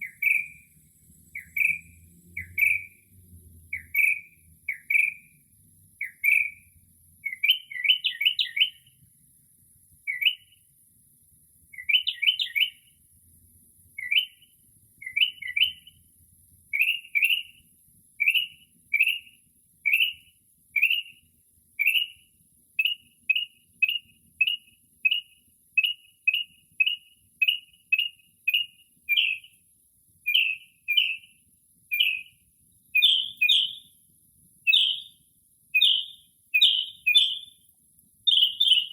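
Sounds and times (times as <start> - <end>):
mockingbird singing: 0.0 - 5.4, 6.0 - 8.9, 10.0 - 10.6, 11.7 - 12.9, 14.0 - 16.0, 16.7 - 17.6, 18.2 - 21.2, 21.8 - 22.2, 22.8 - 29.6, 30.2 - 34.0, 34.6 - 37.6, 38.2 - 38.9.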